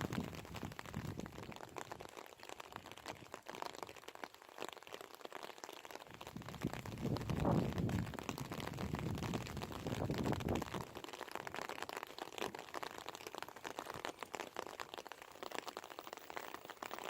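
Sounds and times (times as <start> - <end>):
low rumble of wind: 0.0 - 1.6, 6.2 - 11.0
rain pattering: 0.0 - 17.0.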